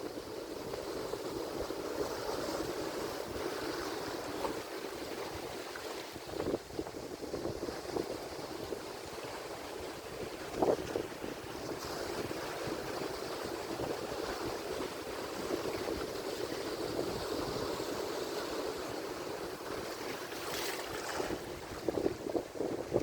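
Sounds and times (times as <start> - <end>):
wave splash: 0.0 - 23.0
ocean waves breaking: 7.6 - 23.0.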